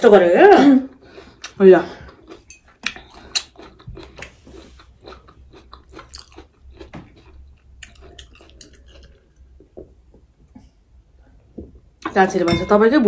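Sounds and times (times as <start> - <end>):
crunchy chewing and biting: 1.4 - 9.4.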